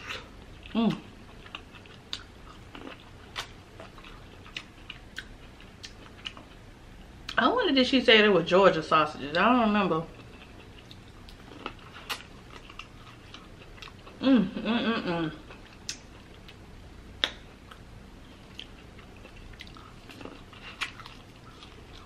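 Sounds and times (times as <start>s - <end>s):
person humming: 14.2s - 15.4s
wet mouth clicks: 17.2s - 17.4s.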